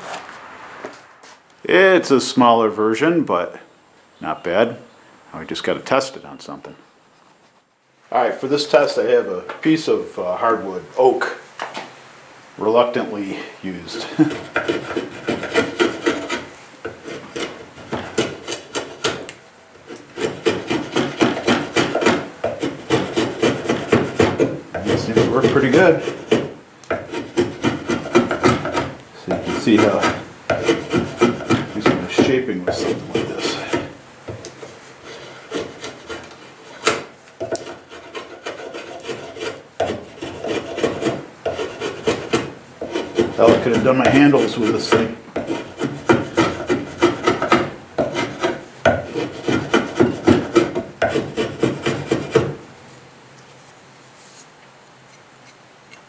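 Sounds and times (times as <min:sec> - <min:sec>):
draw knife shaving wood: 0:14.0 - 0:52.6.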